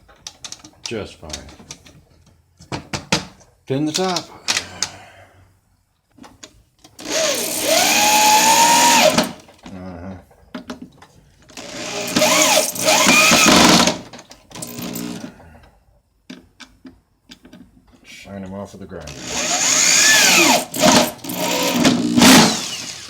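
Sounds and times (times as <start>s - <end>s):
electric drill motor whine: 7.0s - 9.4s, 11.6s - 14.0s, 14.6s - 15.2s, 19.1s - 23.0s
small clicks and knocks: 16.2s - 18.0s.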